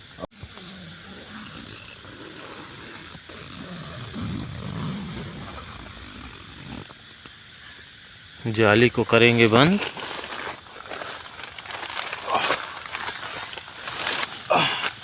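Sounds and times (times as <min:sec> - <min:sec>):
faint steady hiss: 0:00.0 - 0:15.0
bag rustling and shuffling: 0:09.2 - 0:15.0.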